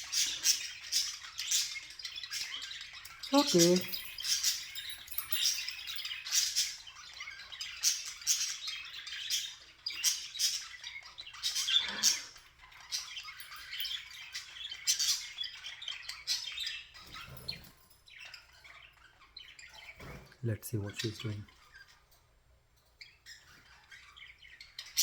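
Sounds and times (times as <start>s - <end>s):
budgerigar chirping and squawking: 0.0s - 4.7s, 5.5s - 17.6s, 23.0s - 25.0s.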